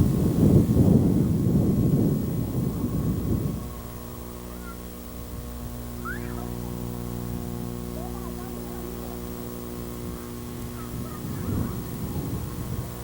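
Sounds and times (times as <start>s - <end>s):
steady low hum: 0.0s - 13.0s
high gliding calls: 3.6s - 13.0s.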